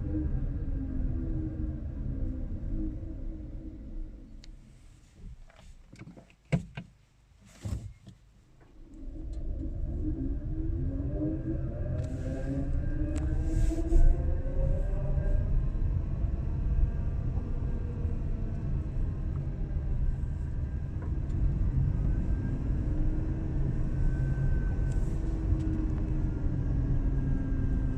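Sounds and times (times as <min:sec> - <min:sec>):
road and tyre rumble: 0:00.0 - 0:27.9
drivetrain whine: 0:07.9 - 0:27.9.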